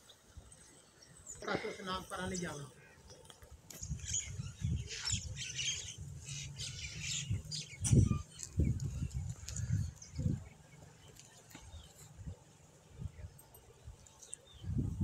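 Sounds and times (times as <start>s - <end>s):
birds chirping and squawking: 1.0s - 12.3s.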